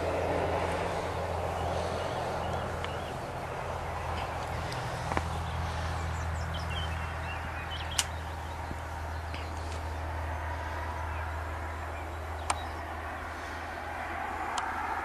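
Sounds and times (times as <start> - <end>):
steady low hum: 0.0 - 15.0
small birds chirping: 0.4 - 15.0
sharp clicks: 7.8 - 8.2, 12.4 - 12.7.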